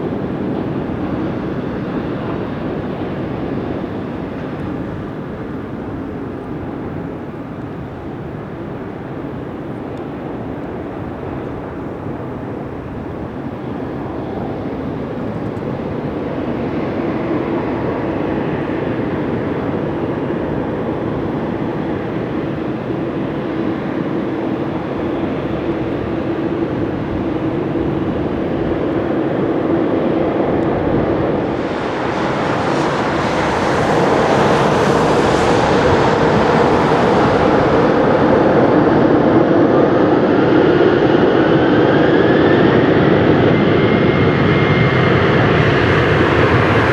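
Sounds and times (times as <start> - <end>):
jet engines humming: 0.0 - 46.9
rising whine: 30.5 - 41.1, 43.8 - 46.9.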